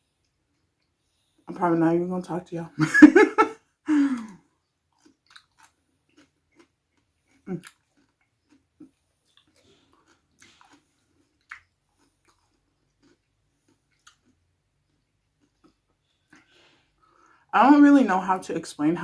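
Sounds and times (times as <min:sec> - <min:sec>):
wet chewing mouth clicks: 0:05.0 - 0:16.5.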